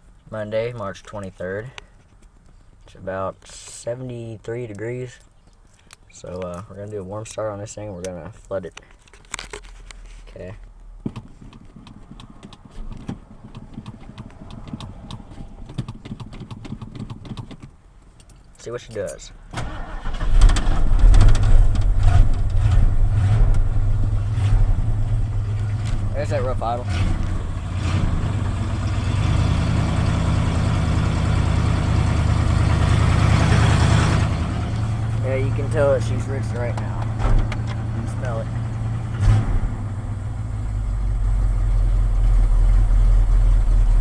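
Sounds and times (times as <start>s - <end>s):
gas pedal linkage clicks and knocks: 11.1s - 18.4s
engine idling rough: 20.9s - 44.0s.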